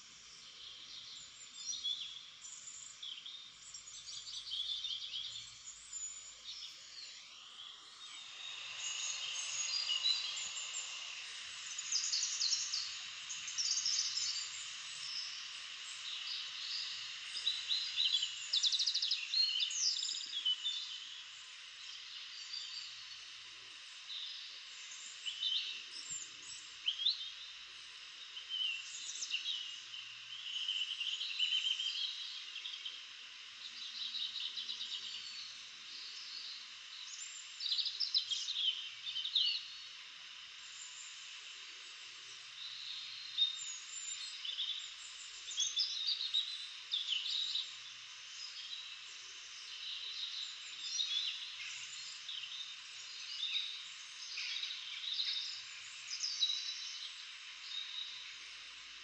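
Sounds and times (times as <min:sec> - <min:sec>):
songbirds chirping and trilling: 0:00.0 - 0:41.4
steady high hiss: 0:00.0 - 0:59.0.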